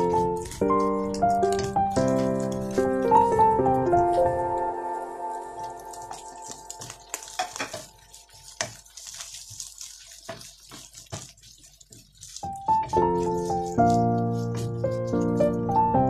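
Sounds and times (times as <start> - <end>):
spatula knocking and scraping: 0.0 - 4.5, 6.8 - 16.0
piano music: 0.0 - 9.0, 12.2 - 16.0
sausage sizzling in oil: 0.0 - 15.8.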